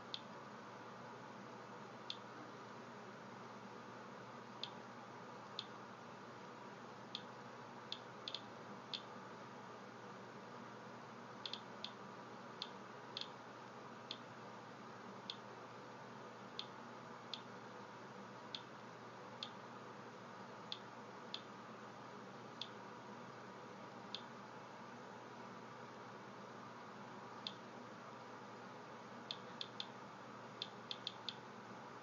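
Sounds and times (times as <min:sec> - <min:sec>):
faint steady hiss: 0:00.0 - 0:32.0
geiger counter clicking: 0:07.9 - 0:09.1, 0:11.4 - 0:12.0, 0:29.3 - 0:29.9, 0:30.6 - 0:31.4.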